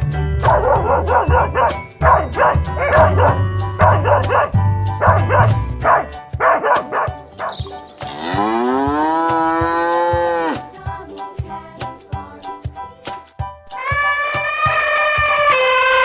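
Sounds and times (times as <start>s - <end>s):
background music with beat: 0.0s - 16.0s
dog barking: 0.4s - 7.6s
cow mooing: 8.1s - 10.6s.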